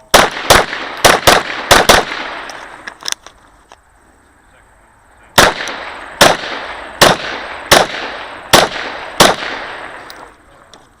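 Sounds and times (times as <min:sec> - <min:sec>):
pistol shots with echo: 0:00.1 - 0:02.8, 0:05.4 - 0:10.3.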